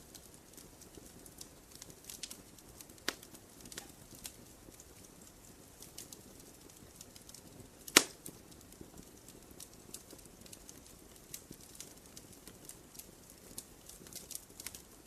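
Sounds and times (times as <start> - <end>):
campfire crackling: 0.0 - 15.0
loud sharp pop: 7.9 - 8.2.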